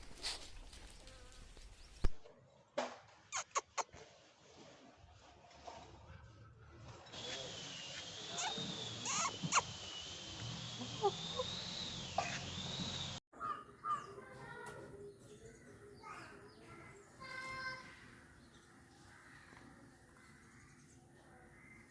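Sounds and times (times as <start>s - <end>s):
birds chirping: 0.0s - 2.7s, 7.0s - 21.9s
wavering high-pitched whine: 7.1s - 13.2s
chickens clucking: 8.0s - 14.8s.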